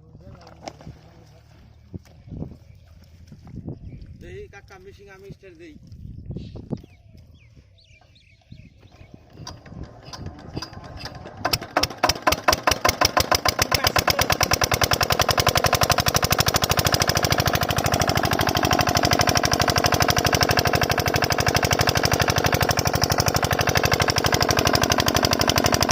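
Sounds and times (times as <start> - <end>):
diesel engine starting and running: 8.0 - 25.9.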